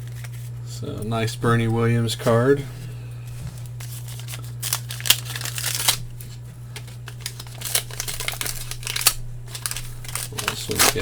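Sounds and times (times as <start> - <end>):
steady low hum: 0.0 - 11.0
trading cards flicking: 3.6 - 11.0.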